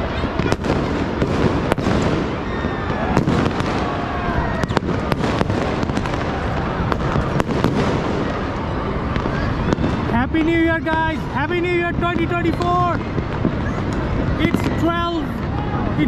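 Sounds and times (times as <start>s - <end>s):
fireworks cracks and pops: 0.0s - 16.0s
fireworks rumbling bangs: 0.0s - 16.0s
falling firework whistles: 0.1s - 10.0s.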